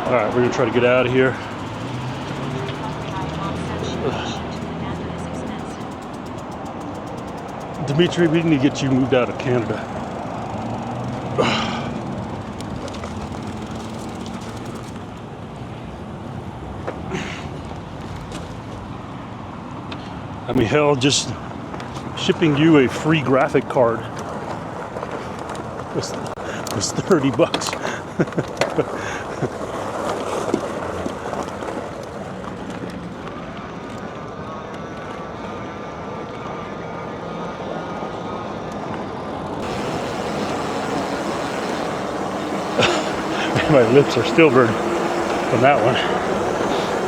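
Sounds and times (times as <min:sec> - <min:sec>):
wind and road noise: 0:00.0 - 0:47.0.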